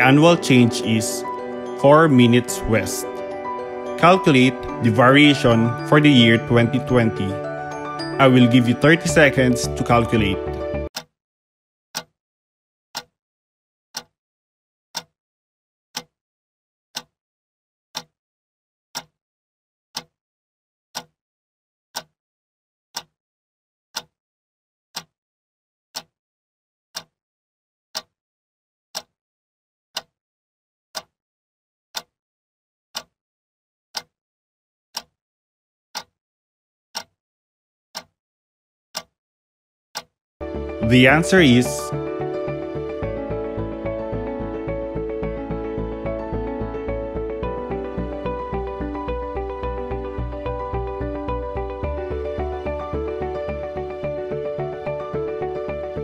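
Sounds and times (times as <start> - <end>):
timer ticking: 0.0 - 11.1, 13.9 - 14.1, 14.9 - 15.1, 40.0 - 55.9.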